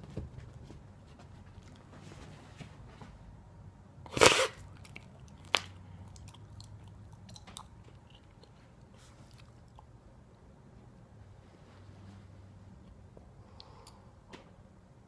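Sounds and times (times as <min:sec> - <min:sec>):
puppy chewing and biting: 0:04.1 - 0:10.0.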